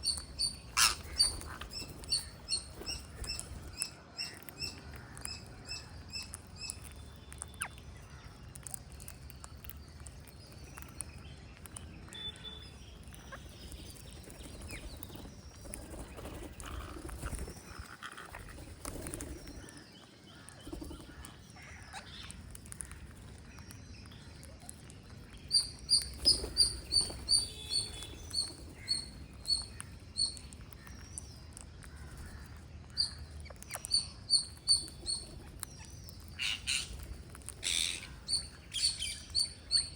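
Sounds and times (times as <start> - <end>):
parrots chirping: 0.0 - 3.9, 25.4 - 31.1, 32.9 - 39.9.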